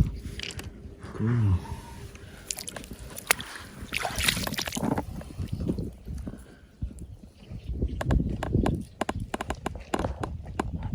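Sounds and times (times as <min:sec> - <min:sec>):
water sloshing: 0:02.3 - 0:06.0.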